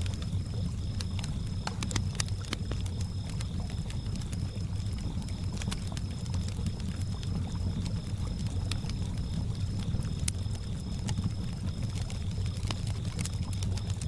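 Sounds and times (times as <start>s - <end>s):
campfire crackling and popping: 0.0s - 14.0s
crickets trilling: 0.0s - 14.0s.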